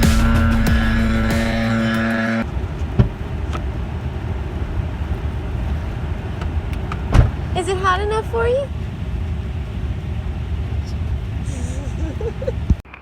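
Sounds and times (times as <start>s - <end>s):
electronic music with steady beat: 0.0s - 2.4s
vehicle rumbling on road: 0.0s - 12.8s.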